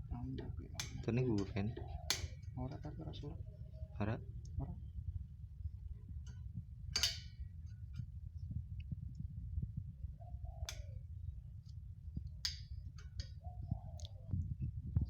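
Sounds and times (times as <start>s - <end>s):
low steady rumble: 0.0s - 15.0s
tools clicking and clinking: 7.0s - 7.4s.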